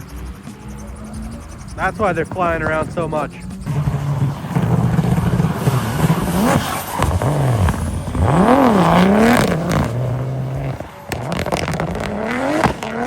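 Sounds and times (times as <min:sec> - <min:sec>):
car engine revving high: 0:00.0 - 0:13.0.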